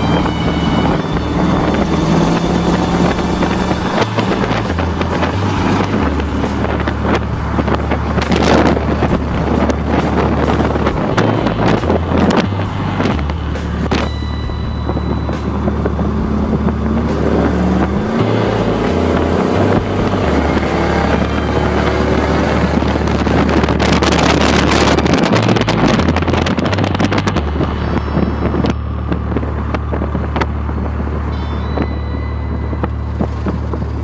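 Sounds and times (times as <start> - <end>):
car engine revving: 0.0 - 34.0
wind buffeting microphone: 0.0 - 34.0.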